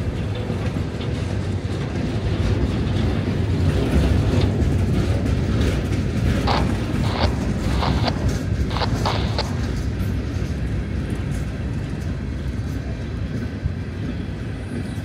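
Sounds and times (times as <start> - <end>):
freight train wheels rumbling: 0.0 - 15.0
wheels clacking on rail: 0.0 - 15.0.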